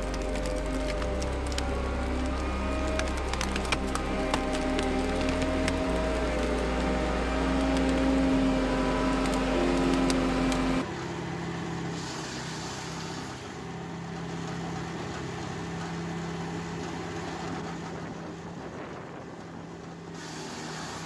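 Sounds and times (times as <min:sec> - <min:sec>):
loud drone with held tones: 0:00.0 - 0:10.9
machinery engine hum: 0:00.0 - 0:21.0.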